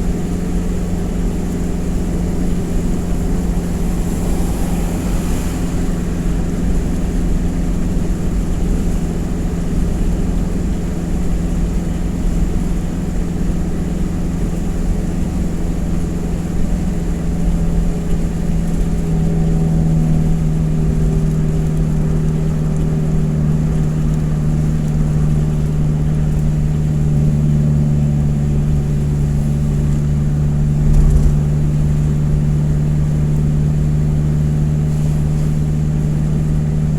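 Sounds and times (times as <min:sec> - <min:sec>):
truck engine running: 0:00.0 - 0:16.9.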